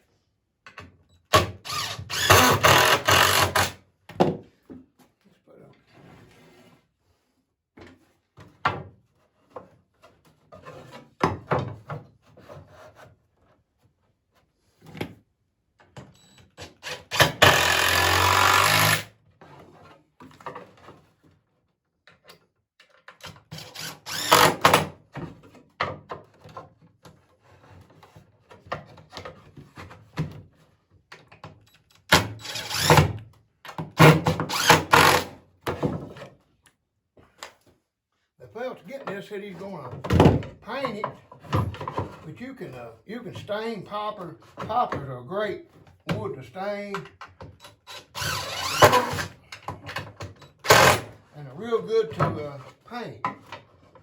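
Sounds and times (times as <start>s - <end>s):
power drill driving a screw: 1.4s - 3.8s, 16.8s - 19.1s, 23.6s - 24.9s, 32.1s - 33.2s, 34.0s - 35.4s, 47.8s - 49.3s, 50.6s - 51.1s.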